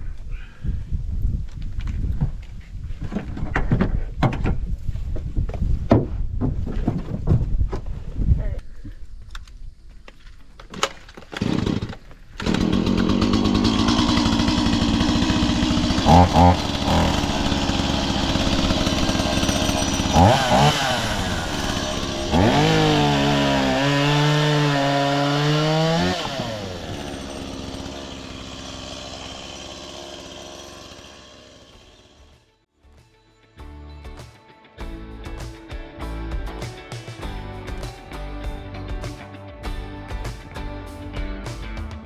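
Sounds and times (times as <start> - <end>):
chainsaw cutting tree: 11.4 - 32.4.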